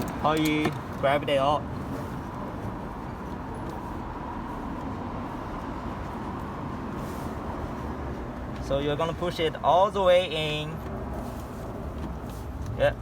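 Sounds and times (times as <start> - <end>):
low background rumble and hum: 0.0 - 13.0
faint rustle: 10.8 - 12.8.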